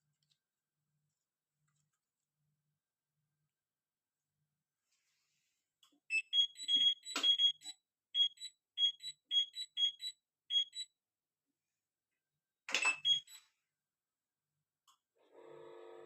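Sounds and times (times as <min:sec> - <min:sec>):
washing machine control panel beeping: 0:06.1 - 0:11.0, 0:12.7 - 0:13.6.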